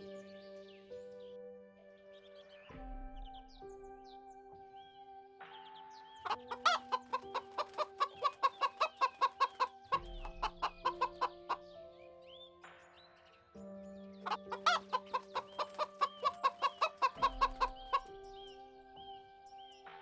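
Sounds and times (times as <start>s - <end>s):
calm background music: 0.0s - 20.0s
chicken clucking: 6.2s - 11.6s, 14.3s - 18.1s.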